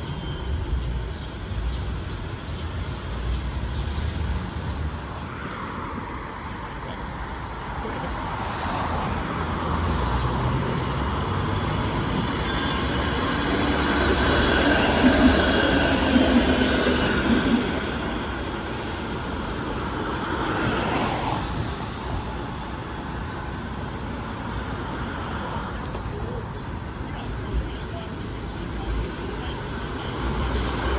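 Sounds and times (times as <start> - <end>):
streetcar rumbling on rails: 0.0 - 30.9
steel wheels squealing: 9.6 - 20.5.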